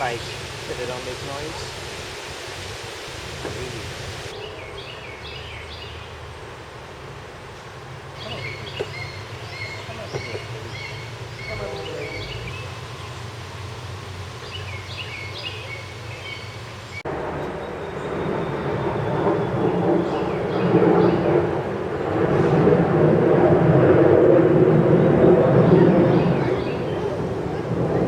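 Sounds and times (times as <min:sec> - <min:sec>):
outdoor background noise: 0:00.0 - 0:28.0
songbird chirping: 0:04.3 - 0:06.5, 0:08.1 - 0:13.6, 0:14.3 - 0:18.4.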